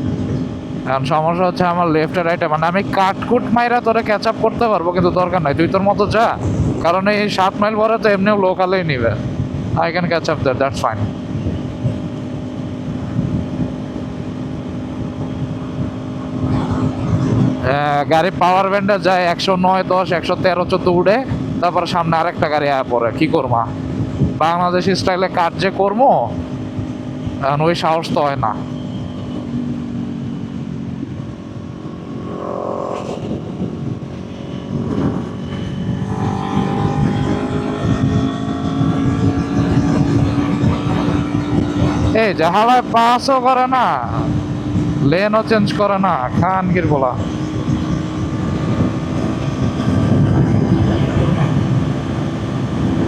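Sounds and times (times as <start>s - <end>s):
motorcycle engine cruising: 0.0s - 53.0s
wind rush: 0.0s - 53.0s.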